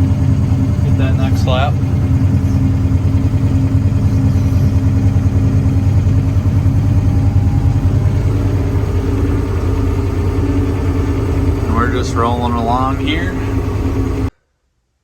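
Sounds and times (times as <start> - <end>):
truck engine running slowly: 0.0 - 14.3.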